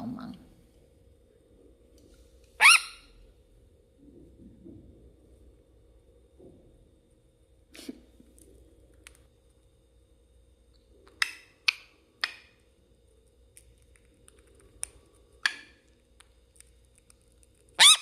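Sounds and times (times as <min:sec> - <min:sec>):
parrot chirps and clicks: 0:02.6 - 0:03.1, 0:11.0 - 0:12.6, 0:13.5 - 0:18.0.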